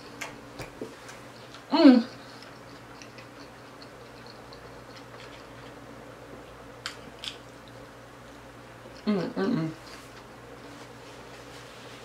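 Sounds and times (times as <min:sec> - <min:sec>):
chewing taco: 0:00.0 - 0:06.1, 0:06.8 - 0:09.1, 0:09.8 - 0:10.9
steady low hum: 0:00.0 - 0:12.0.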